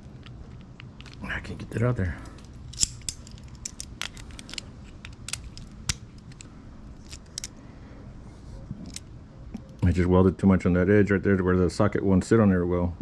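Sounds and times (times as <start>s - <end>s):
low steady hum: 0.0s - 13.0s
metal tool clicks and clinks: 2.3s - 7.5s.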